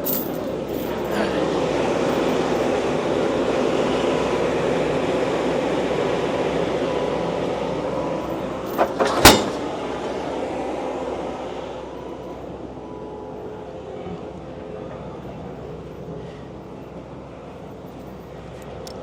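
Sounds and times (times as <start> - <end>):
engine running: 0.0 - 19.0
sharp knock: 8.8 - 9.7.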